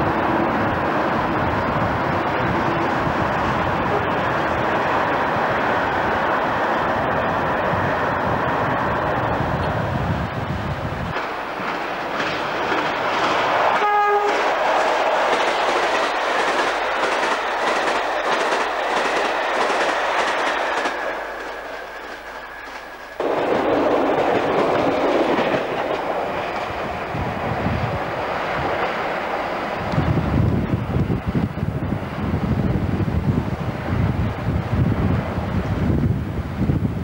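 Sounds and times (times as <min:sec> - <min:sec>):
rail and wheel noise: 0:00.0 - 0:37.0
train rushing past: 0:00.0 - 0:37.0
wind buffeting microphone: 0:00.0 - 0:37.0
train horn blast: 0:03.9 - 0:04.2, 0:13.7 - 0:14.6.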